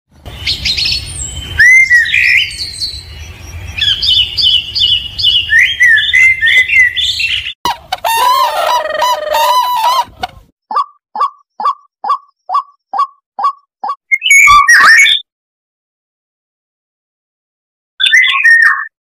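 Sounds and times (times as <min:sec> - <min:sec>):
finches chirping and twittering: 0:00.3 - 0:07.6
cranes calling loudly: 0:08.0 - 0:10.2.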